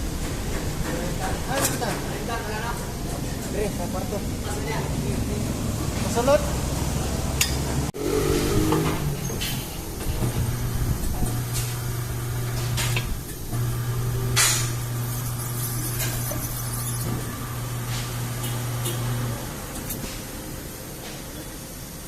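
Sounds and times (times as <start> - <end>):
machine motor humming: 5.0 - 20.0.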